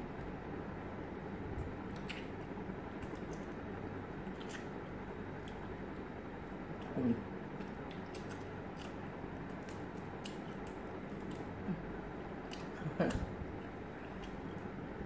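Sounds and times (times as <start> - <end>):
steady room hiss: 0.0 - 15.0
lip smacks and clicks: 1.9 - 2.4, 4.3 - 4.7, 7.6 - 11.5, 12.5 - 13.3, 14.2 - 14.7
people chewing: 6.8 - 14.7.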